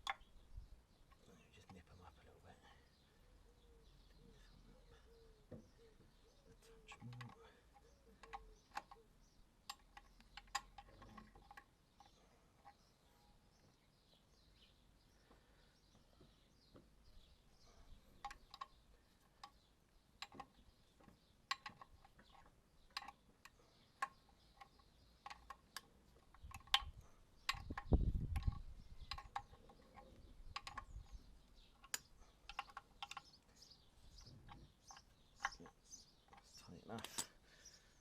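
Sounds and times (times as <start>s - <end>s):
metal spanner clicking on bolts: 9.7s - 12.8s, 21.5s - 31.2s, 31.8s - 33.4s.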